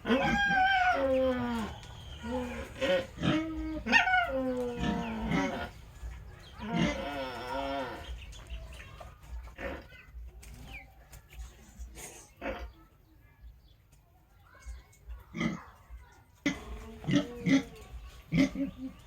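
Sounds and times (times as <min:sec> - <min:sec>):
person calling pigs: 0:00.0 - 0:05.8, 0:06.6 - 0:08.2.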